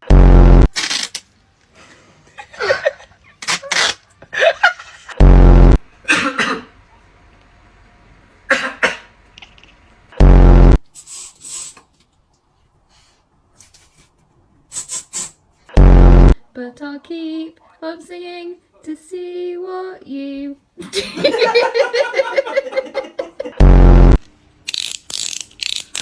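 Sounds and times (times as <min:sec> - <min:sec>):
loud low buzzy blast: 0:00.0 - 0:00.7, 0:05.2 - 0:05.9, 0:10.2 - 0:10.8, 0:15.8 - 0:16.4, 0:23.6 - 0:24.2.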